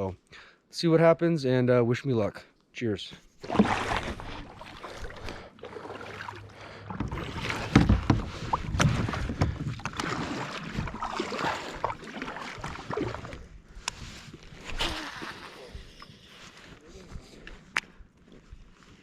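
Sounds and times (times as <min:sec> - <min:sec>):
water splashing around kayak: 0:03.3 - 0:15.8
paddle knocking against kayak: 0:03.4 - 0:12.8.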